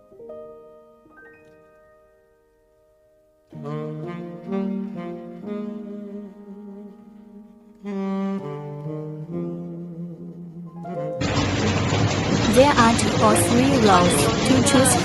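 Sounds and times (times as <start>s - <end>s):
melody of held notes: 0.0s - 11.2s.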